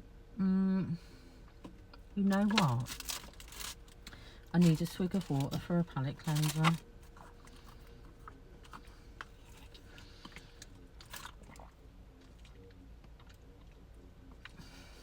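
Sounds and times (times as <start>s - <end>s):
person sipping and swallowing water: 9.7s - 13.8s.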